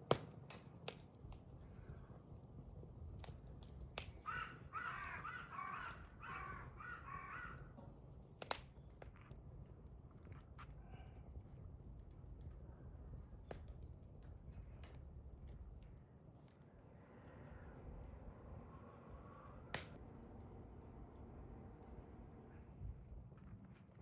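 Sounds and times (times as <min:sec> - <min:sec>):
burning wood popping: 0:00.0 - 0:16.8, 0:19.7 - 0:20.0
crow cawing: 0:04.2 - 0:07.8.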